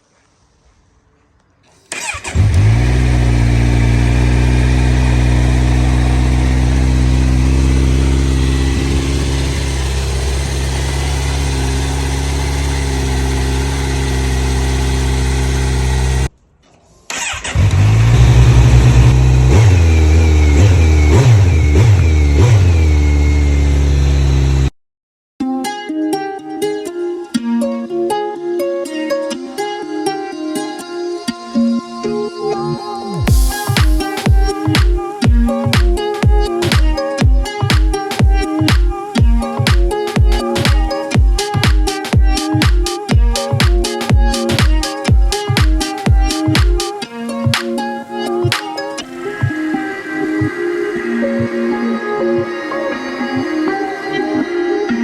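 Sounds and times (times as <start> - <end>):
motorcycle engine idling and revving: 1.9 - 16.3, 17.2 - 24.7, 33.3 - 46.8.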